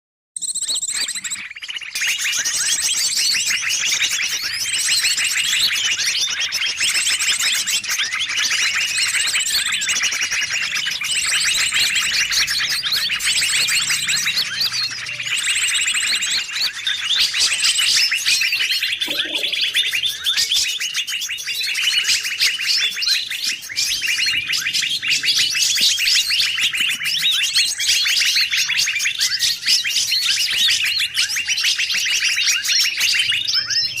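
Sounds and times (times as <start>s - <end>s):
songbirds chirping and trilling: 0.4s - 34.0s
high sharp bird phrase: 18.8s - 20.3s.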